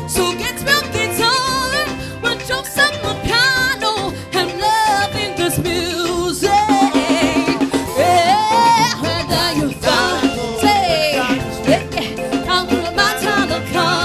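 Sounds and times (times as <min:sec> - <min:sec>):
person singing: 0:00.0 - 0:14.0
upbeat band music: 0:00.0 - 0:14.0.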